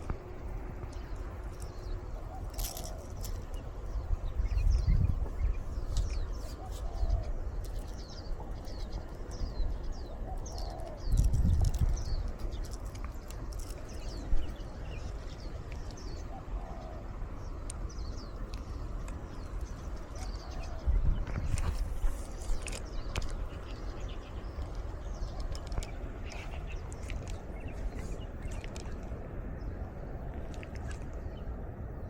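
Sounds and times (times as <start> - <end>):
small birds chirping: 0.0 - 32.0
wind buffeting microphone: 0.0 - 32.0
dove cooing: 2.1 - 3.4, 6.4 - 7.4, 10.1 - 11.8, 16.1 - 17.2.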